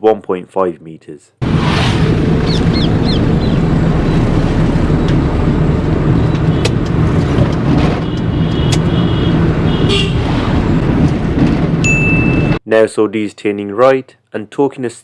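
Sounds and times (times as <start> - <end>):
car road and engine rumble: 1.4 - 12.6.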